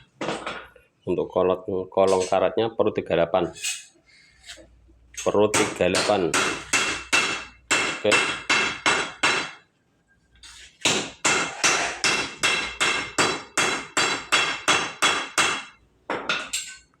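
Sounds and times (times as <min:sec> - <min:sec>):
hammer striking metal: 0:05.5 - 0:09.6, 0:10.8 - 0:16.8.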